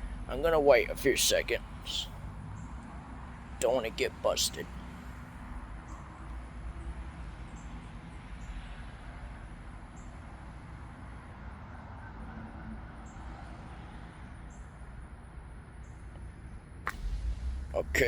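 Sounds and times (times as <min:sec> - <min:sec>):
low rumble with hiss: 0:15.0 - 0:18.0.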